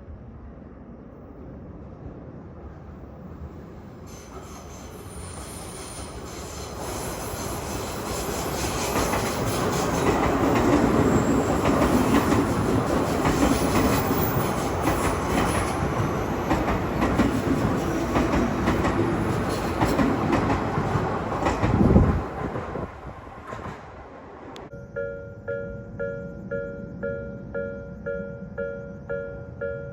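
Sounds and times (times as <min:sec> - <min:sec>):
train wheels rumbling on rails: 0:02.9 - 0:24.7
wheels clacking over rail joints: 0:08.2 - 0:22.4.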